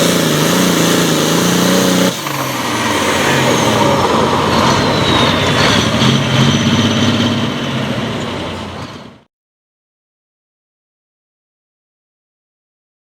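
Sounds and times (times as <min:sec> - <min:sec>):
tractor diesel engine running: 0:00.0 - 0:09.3.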